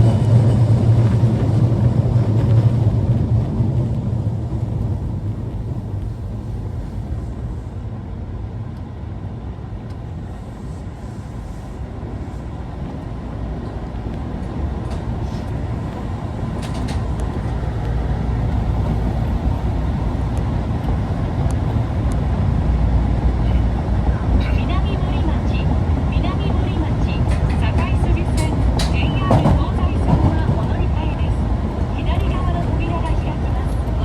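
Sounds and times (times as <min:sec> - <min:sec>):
subway car rumbling: 0:00.0 - 0:34.0.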